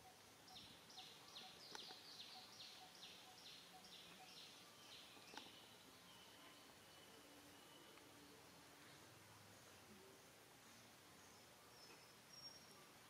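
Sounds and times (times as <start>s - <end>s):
faint clicks: 1.6s - 2.0s, 5.2s - 5.6s.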